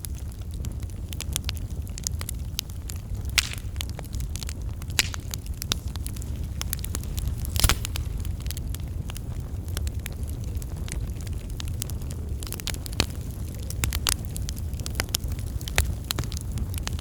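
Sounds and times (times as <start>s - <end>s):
low rumble of flames: 0.0s - 17.0s
wood fire crackling: 0.0s - 17.0s
sharp pops of fire: 0.7s - 17.0s.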